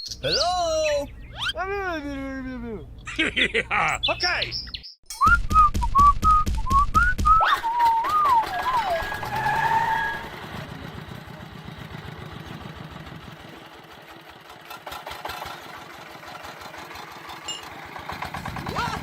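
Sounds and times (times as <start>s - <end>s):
wavering whistle-like tone: 5.1s - 10.4s
small engine running: 8.3s - 19.0s.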